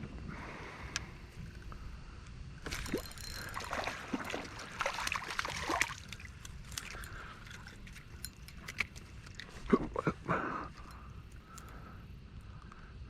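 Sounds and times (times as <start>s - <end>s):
water splashing beside a kayak: 2.6s - 8.0s.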